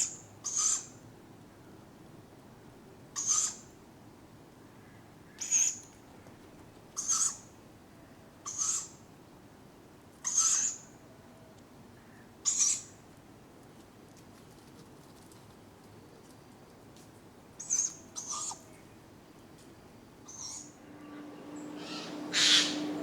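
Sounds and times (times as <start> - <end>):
owlets giving hissing begging calls: 21.7 - 23.0.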